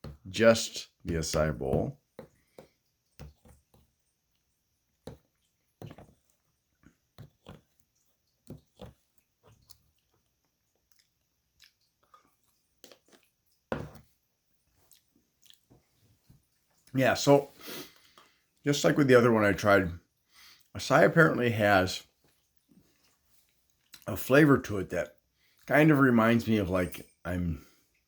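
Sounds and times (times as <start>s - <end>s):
person chewing: 2.4s - 13.7s, 14.6s - 15.8s, 22.4s - 24.1s.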